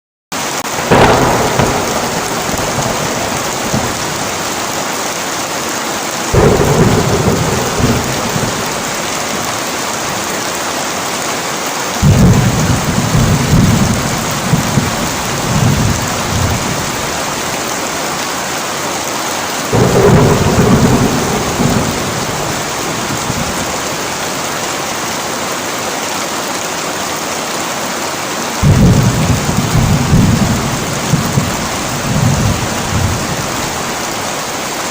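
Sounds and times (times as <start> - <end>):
heavy rain pouring: 0.4 - 34.9
thunder rolling: 0.7 - 5.3, 6.3 - 10.6, 12.0 - 18.0, 19.7 - 24.6, 28.6 - 34.3.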